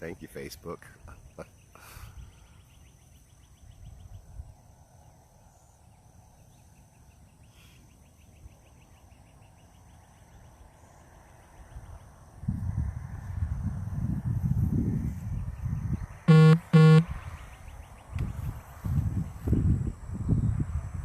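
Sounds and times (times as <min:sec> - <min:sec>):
wind rumbling on microphone: 0:11.6 - 0:16.3, 0:17.0 - 0:21.0.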